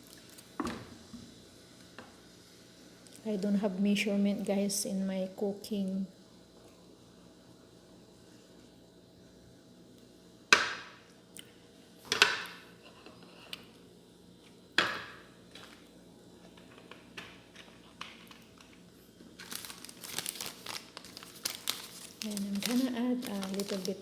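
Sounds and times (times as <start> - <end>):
seasoning packet crinkling: 17.6 - 24.0.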